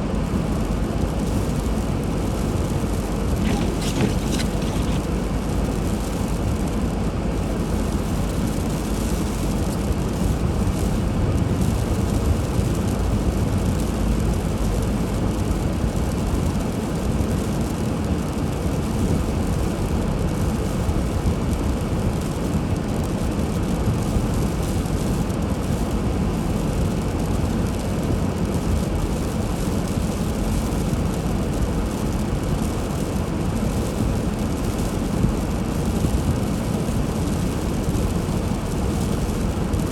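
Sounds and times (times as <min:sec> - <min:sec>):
car driving rumble: 0:00.6 - 0:16.4.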